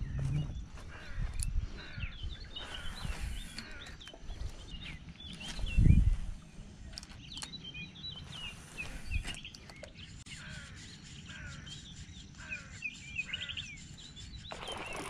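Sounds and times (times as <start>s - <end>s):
low rumble: 0.0s - 0.9s
small birds chirping: 0.0s - 15.0s.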